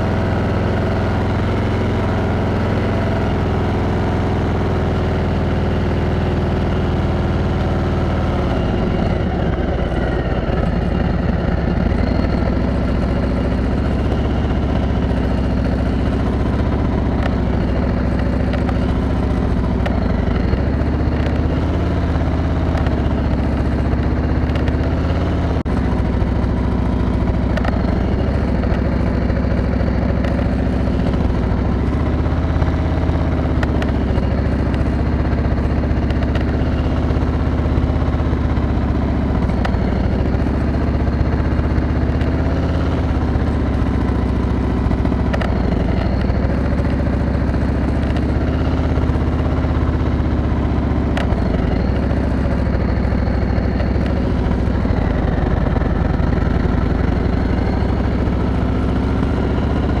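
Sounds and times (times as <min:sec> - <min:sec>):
motorcycle engine running: 0:00.0 - 1:00.0.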